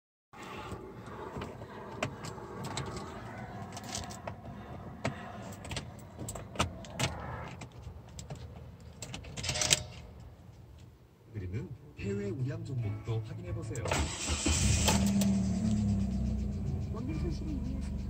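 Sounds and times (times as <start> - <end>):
car engine idling: 14.0 - 18.0.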